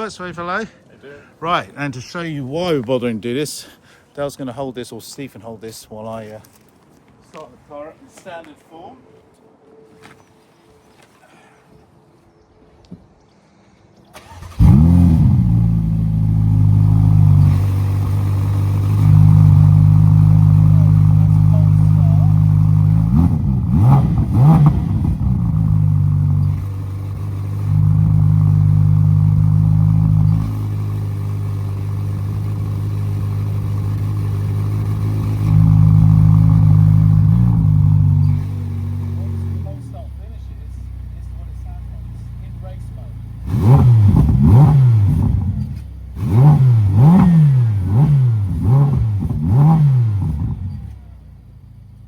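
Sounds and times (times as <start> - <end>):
car engine starting and idling: 14.1 - 52.0.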